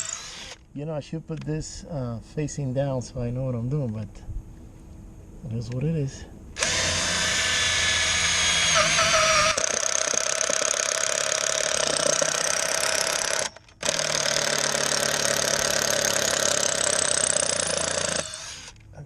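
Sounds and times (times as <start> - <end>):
power drill whining: 0.0 - 0.6, 6.6 - 18.8.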